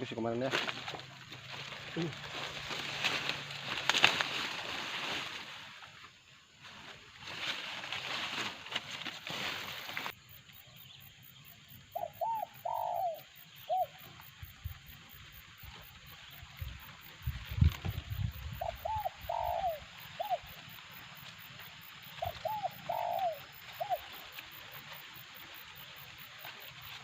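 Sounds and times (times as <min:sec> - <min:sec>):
rustling: 0:00.0 - 0:10.2, 0:19.6 - 0:27.0
doves cooing: 0:11.7 - 0:17.1, 0:17.8 - 0:27.0.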